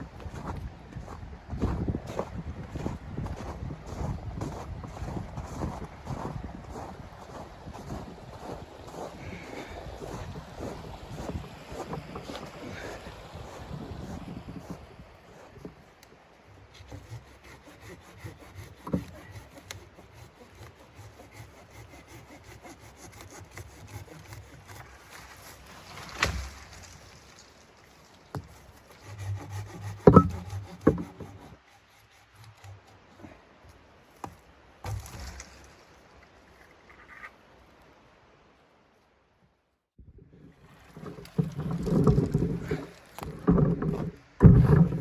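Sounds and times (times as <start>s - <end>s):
wood scraping and rubbing: 7.3s - 16.0s, 16.6s - 33.0s, 40.7s - 45.0s
wood knocks: 28.3s - 31.4s, 41.0s - 45.0s.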